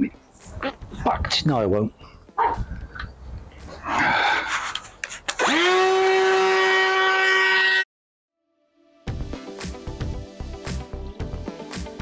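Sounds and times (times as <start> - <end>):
power tool motor whine: 5.4 - 7.5.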